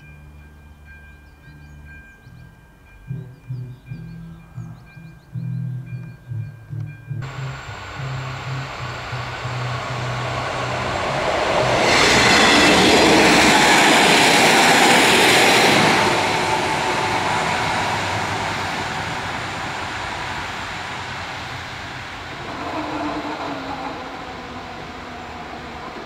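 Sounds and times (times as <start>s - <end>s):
train rolling past: 0.0s - 26.0s.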